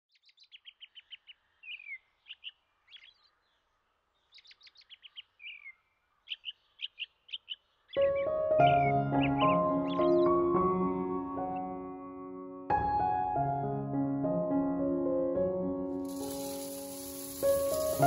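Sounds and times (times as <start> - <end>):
songbird singing: 0.1 - 11.9
music: 8.0 - 18.0.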